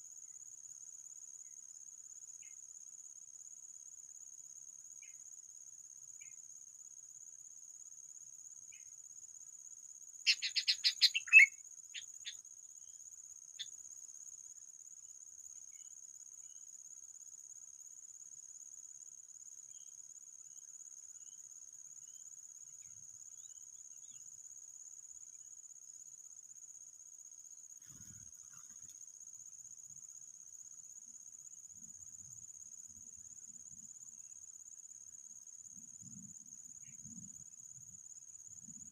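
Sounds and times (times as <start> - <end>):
insect chirring drone: 0.0 - 38.9
bird chirps: 10.3 - 12.4.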